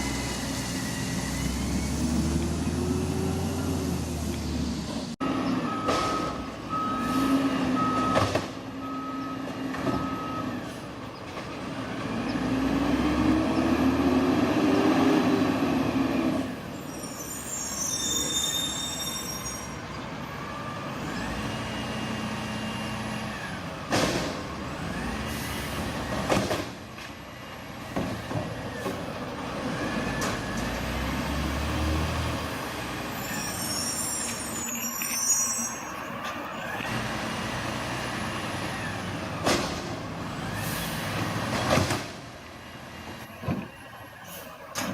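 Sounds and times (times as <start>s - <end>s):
truck engine revving: 11.6s - 16.6s, 29.4s - 33.1s.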